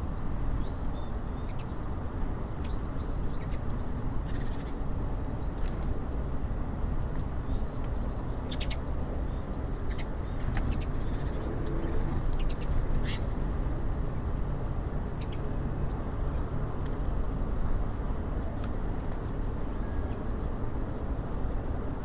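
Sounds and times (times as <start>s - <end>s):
low rumble of city traffic: 0.0s - 22.0s
small birds chirping: 0.5s - 1.8s, 2.6s - 5.7s, 7.1s - 13.4s, 14.2s - 16.6s.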